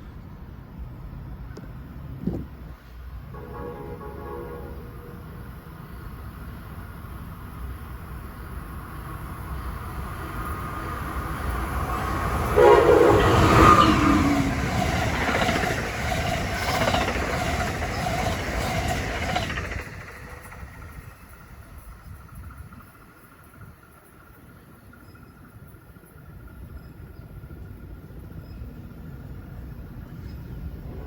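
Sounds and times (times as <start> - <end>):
passenger train passing: 0.0 - 31.0
rumble and clatter of train cars: 0.0 - 31.0
train horn: 3.3 - 5.4, 12.4 - 14.6.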